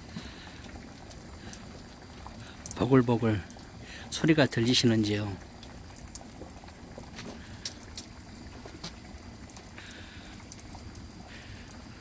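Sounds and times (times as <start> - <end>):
broth bubbling in a cauldron: 0.0 - 12.0
small pops: 6.0 - 11.8.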